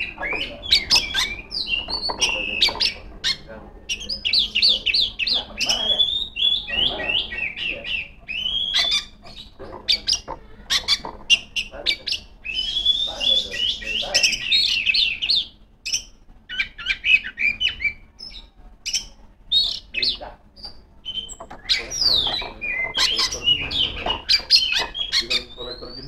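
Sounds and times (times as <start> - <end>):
bird singing varied whistled song: 0.0 - 26.0.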